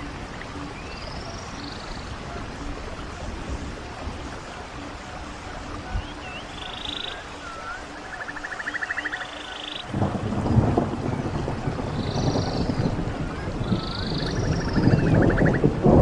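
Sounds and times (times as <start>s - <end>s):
birds whistling and trilling: 0.0s - 3.3s, 5.2s - 9.9s, 11.2s - 15.7s
running stream: 0.0s - 16.0s.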